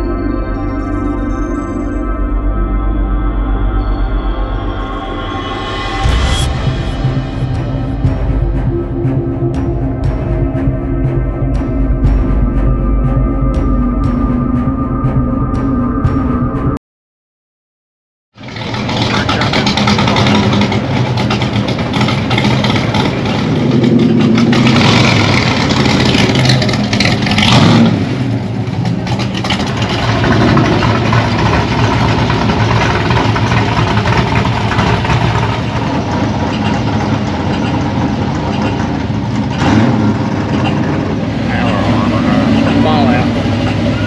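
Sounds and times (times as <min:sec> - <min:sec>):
car engines running and revving: 0:18.4 - 0:44.0
hot rod passing close: 0:18.4 - 0:44.0.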